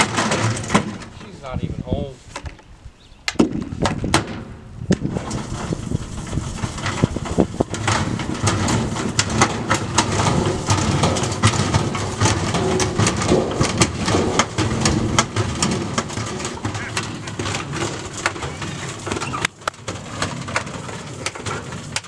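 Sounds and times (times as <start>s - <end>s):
bricks knocking in washing machine: 3.4s - 22.0s
washing machine rumble: 5.1s - 22.0s.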